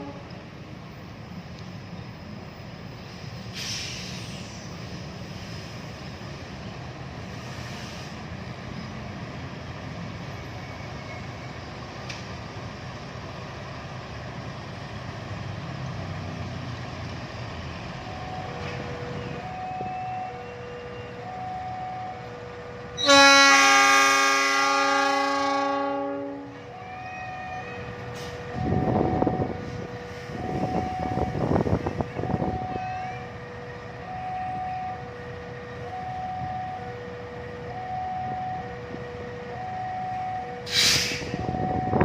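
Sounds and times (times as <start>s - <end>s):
train horn blast: 0.0s - 0.4s, 23.0s - 26.8s.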